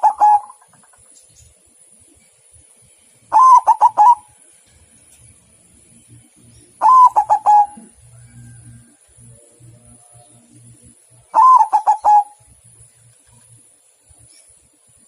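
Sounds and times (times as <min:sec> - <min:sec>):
dove cooing: 0:00.0 - 0:00.7, 0:03.3 - 0:04.3, 0:06.8 - 0:08.8, 0:11.3 - 0:12.4.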